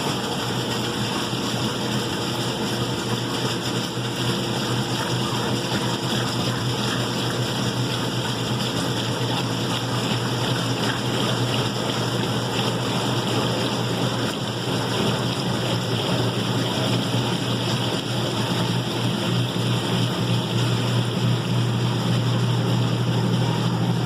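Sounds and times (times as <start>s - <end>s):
washing machine running: 0.0s - 24.0s.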